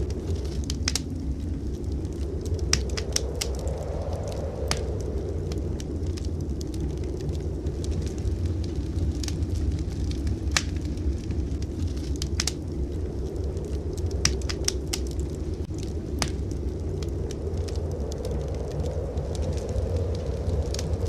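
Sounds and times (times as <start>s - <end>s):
low rumble: 0.0s - 21.0s
wood fire crackling: 0.0s - 21.0s.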